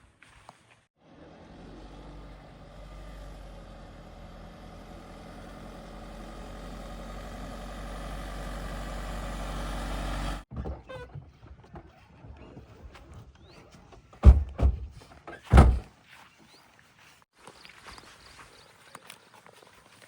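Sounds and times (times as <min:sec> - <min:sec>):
heavy diesel engine running: 0:01.9 - 0:10.4.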